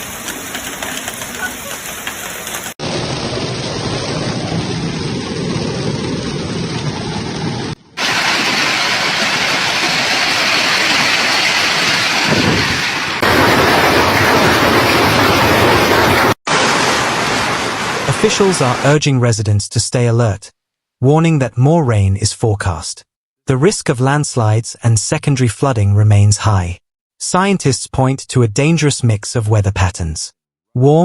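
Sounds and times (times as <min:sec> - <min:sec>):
heavy downpour hissing: 0:08.0 - 0:18.9.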